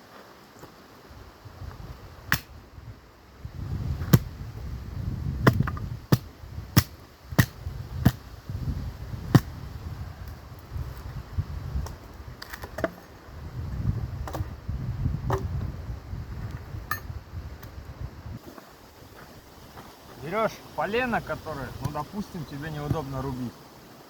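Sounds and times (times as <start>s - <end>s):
axe chopping firewood: 2.3s - 2.5s, 4.0s - 4.3s, 5.4s - 8.3s, 9.2s - 9.6s, 21.8s - 22.0s, 22.8s - 23.2s.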